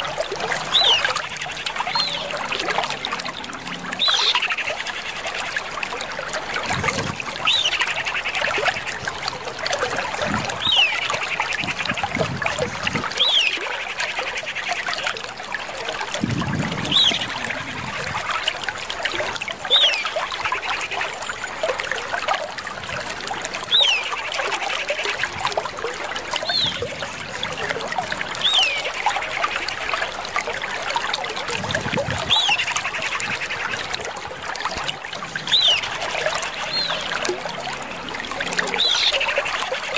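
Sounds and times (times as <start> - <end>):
bird whistle and buzzy trill: 0.7 - 2.4, 4.0 - 5.5, 13.2 - 14.6, 16.9 - 17.4, 28.4 - 29.6, 32.2 - 33.7.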